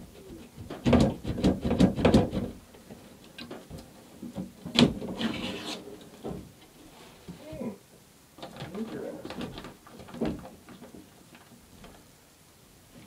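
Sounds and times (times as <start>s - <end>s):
knocks and scrapes: 0.6s - 7.3s.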